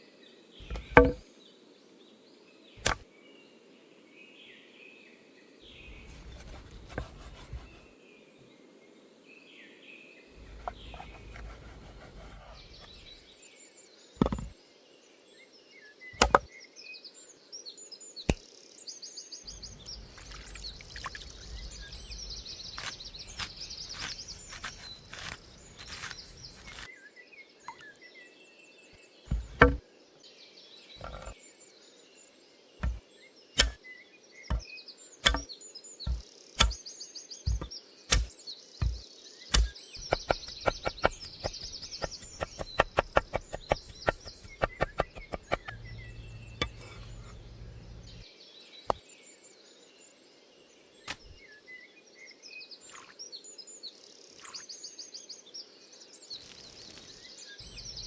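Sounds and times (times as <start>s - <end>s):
knife knocking on cutting board: 0.6s - 1.2s, 14.2s - 14.5s, 16.2s - 16.5s, 29.3s - 29.8s, 31.0s - 31.3s, 36.1s - 36.8s, 37.5s - 39.0s, 39.6s - 48.2s
soft handling noise: 0.6s - 1.2s, 5.8s - 7.9s, 10.4s - 13.2s, 14.2s - 14.5s, 19.5s - 26.9s, 29.3s - 29.8s, 31.0s - 31.4s, 37.5s - 48.2s
birds chirping: 10.4s - 13.2s, 19.5s - 26.9s, 37.5s - 48.2s, 56.9s - 58.0s.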